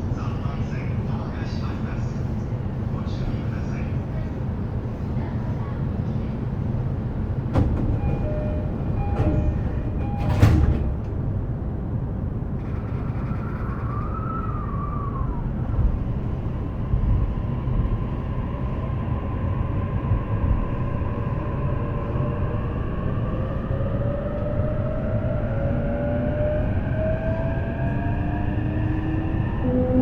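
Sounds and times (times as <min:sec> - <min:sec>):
train doors closing: 0:06.8 - 0:13.3
low rumble: 0:07.5 - 0:30.0
short door chime: 0:08.0 - 0:10.9.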